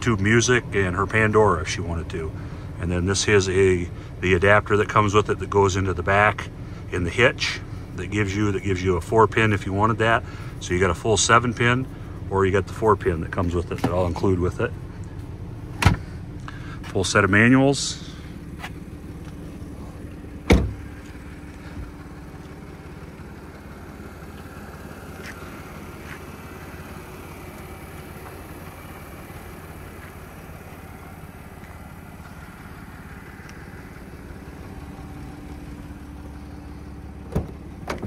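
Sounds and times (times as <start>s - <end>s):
car engine idling: 0.0s - 38.0s
car door being shut: 15.8s - 16.1s, 20.4s - 20.9s, 37.2s - 38.0s.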